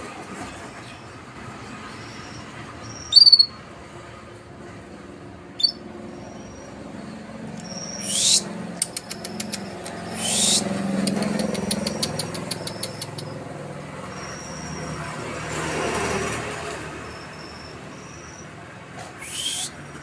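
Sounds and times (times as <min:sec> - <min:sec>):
canary singing: 0:01.8 - 0:03.7, 0:05.5 - 0:15.3, 0:17.0 - 0:18.5.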